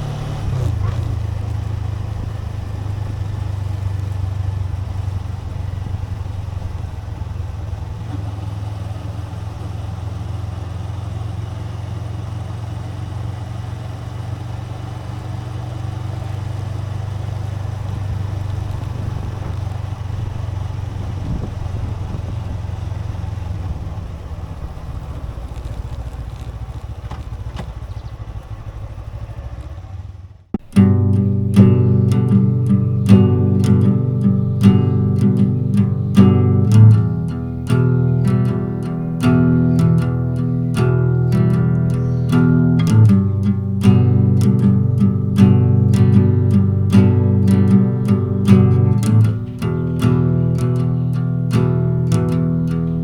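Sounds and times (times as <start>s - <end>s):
wind noise on microphone: 0.0s - 3.3s, 17.5s - 27.2s
motorcycle engine droning: 0.0s - 53.0s.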